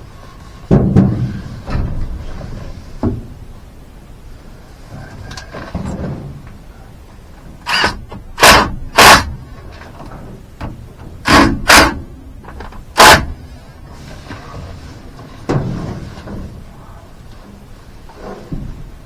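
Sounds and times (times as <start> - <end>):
loud sharp knocks: 0.7 - 2.2, 7.6 - 9.4, 10.6 - 13.4.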